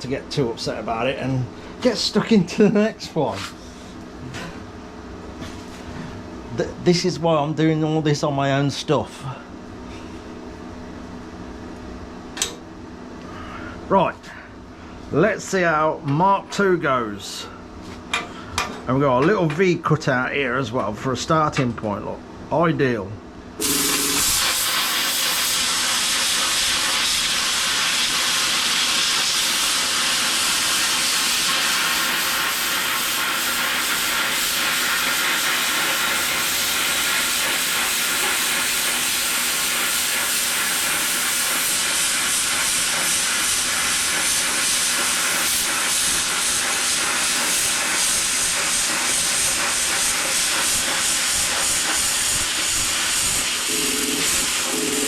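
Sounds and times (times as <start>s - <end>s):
plasma cutter hissing: 23.6s - 55.0s.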